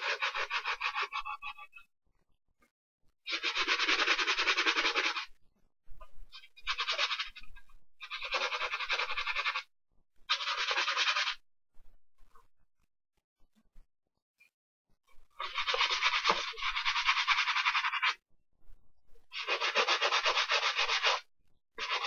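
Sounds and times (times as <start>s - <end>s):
brush scrubbing a sneaker: 0.0s - 1.6s, 3.3s - 5.3s, 6.6s - 9.6s, 10.3s - 11.4s, 15.4s - 18.2s, 19.3s - 21.2s, 21.8s - 22.0s.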